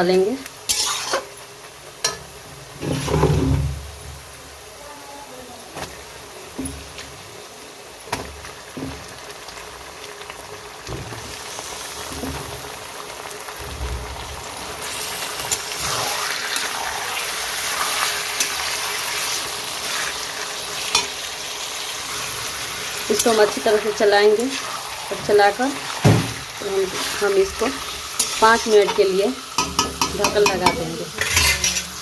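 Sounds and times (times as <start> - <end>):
chicken sizzling in hot oil: 0.0 - 32.0.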